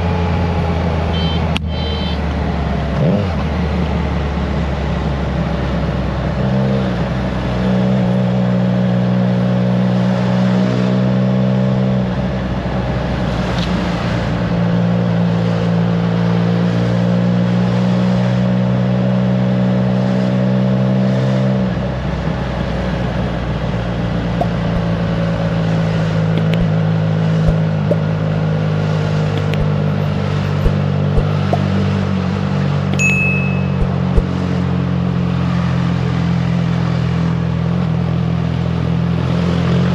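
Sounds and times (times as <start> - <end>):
motorcycle engine running: 23.4 - 35.3.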